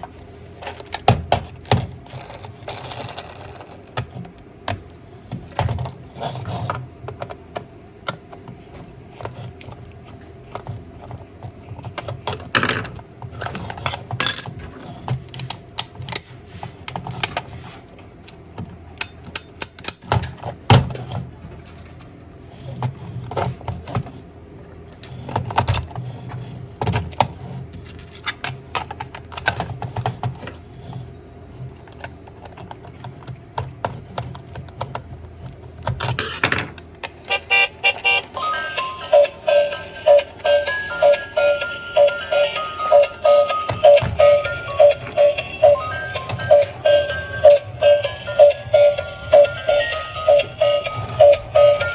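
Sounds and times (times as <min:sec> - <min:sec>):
plastic toy parts clicking: 0:19.0 - 0:20.1
low steady hum: 0:37.2 - 0:51.9.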